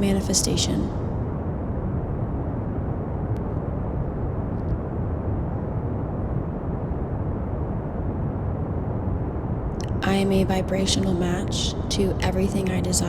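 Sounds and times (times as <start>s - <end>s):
pink noise hiss: 0.0s - 13.0s.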